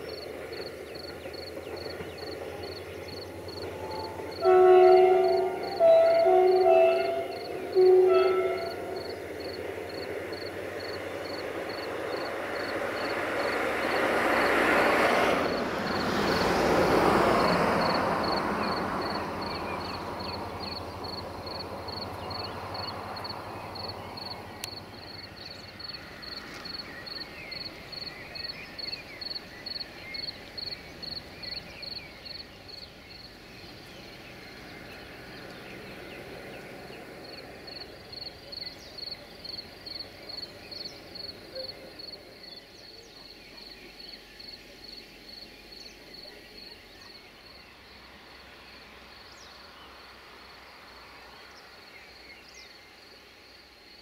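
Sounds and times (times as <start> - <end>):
insect chirping: 0.0 - 14.7, 15.4 - 54.0
passenger train rumbling past: 0.0 - 54.0.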